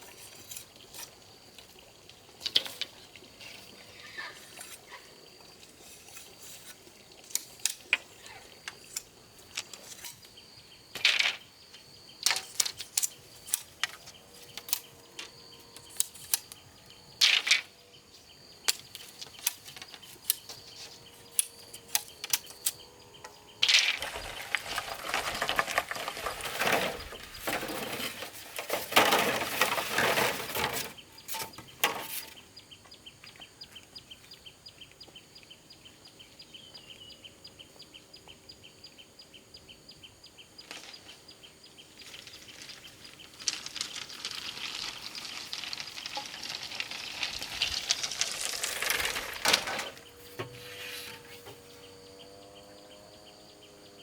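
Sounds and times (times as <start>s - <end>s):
rough scraping or rustling: 23.6s - 32.4s, 42.0s - 51.8s.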